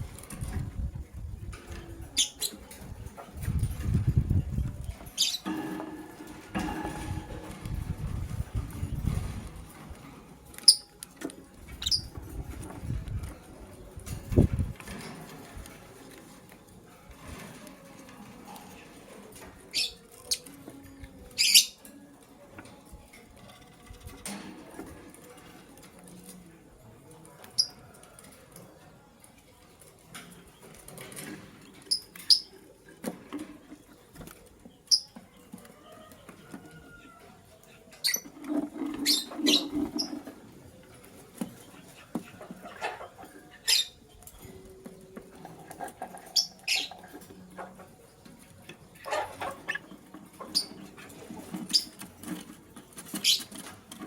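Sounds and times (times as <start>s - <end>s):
lovebirds chirping: 5.2s - 5.4s.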